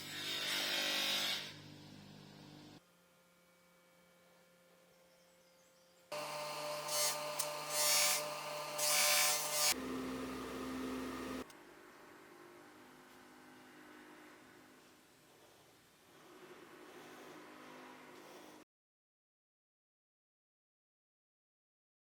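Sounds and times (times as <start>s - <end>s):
power tool motor whine: 6.1s - 11.4s.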